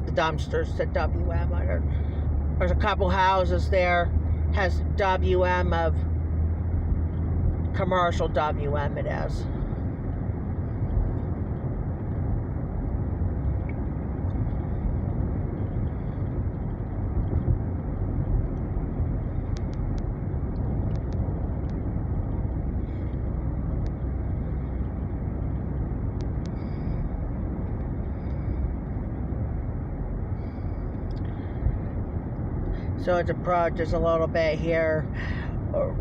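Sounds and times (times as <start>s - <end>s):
car cabin road and engine noise: 0.0s - 36.0s
faint light ticks: 19.4s - 21.8s, 23.7s - 24.1s, 26.2s - 26.9s.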